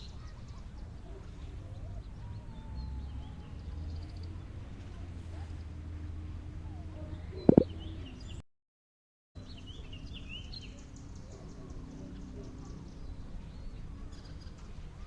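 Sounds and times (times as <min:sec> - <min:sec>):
outdoor background noise: 0:00.0 - 0:08.4, 0:09.4 - 0:15.0
bird chirps: 0:07.4 - 0:07.7.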